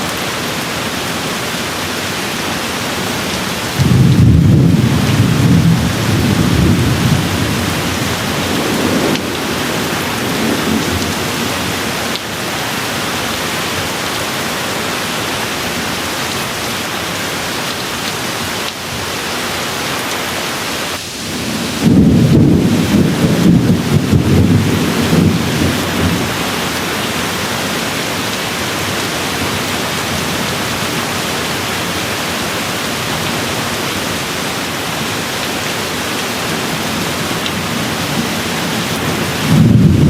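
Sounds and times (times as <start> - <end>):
steady rain: 0.0 - 40.0
rolling thunder: 3.8 - 11.8, 21.0 - 26.8, 36.9 - 40.0.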